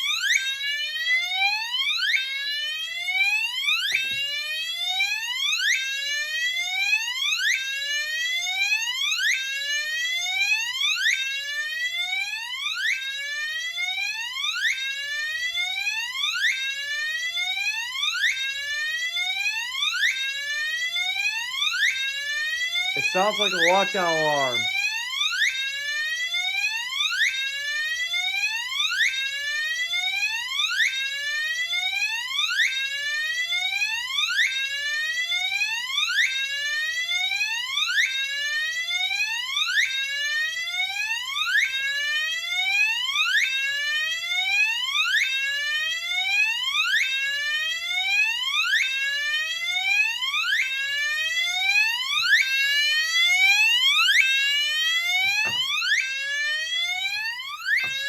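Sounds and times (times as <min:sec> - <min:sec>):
fire alarm horn whooping: 0:23.0 - 0:24.7, 0:55.4 - 0:58.0.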